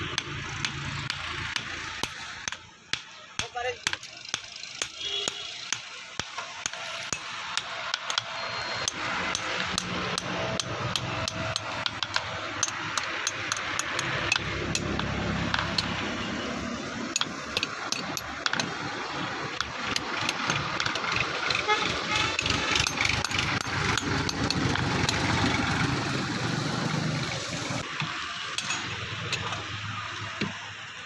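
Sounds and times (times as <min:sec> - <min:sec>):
hammer striking metal: 0:00.0 - 0:16.2, 0:17.0 - 0:18.8, 0:28.5 - 0:28.9.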